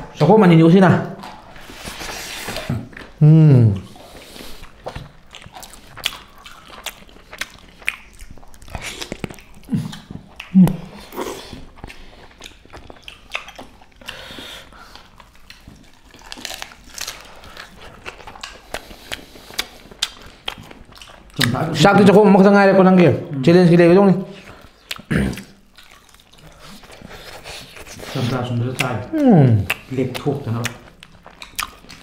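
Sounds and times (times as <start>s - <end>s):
person chewing food: 1.1s - 22.1s, 24.2s - 32.0s
low hums or grunts: 2.7s - 4.0s, 29.1s - 29.7s
wet mouth smacks: 6.1s - 11.1s, 29.6s - 32.0s.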